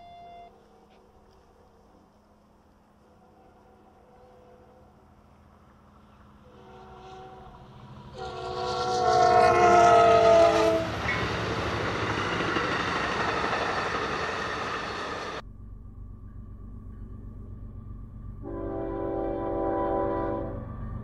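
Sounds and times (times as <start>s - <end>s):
train running by: 0.0s - 21.0s
train horn chord: 3.0s - 5.4s, 6.4s - 11.2s, 18.4s - 20.7s.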